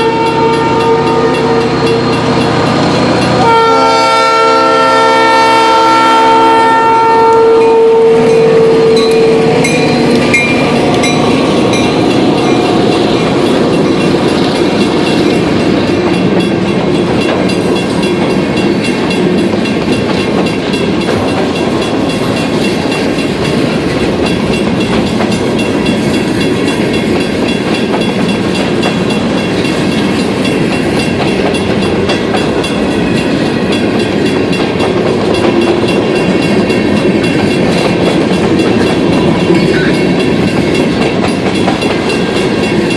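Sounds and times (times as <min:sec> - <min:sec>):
locomotive air horn: 0:00.0 - 0:02.2, 0:03.1 - 0:09.8
train rumbling on rails: 0:00.0 - 0:42.9.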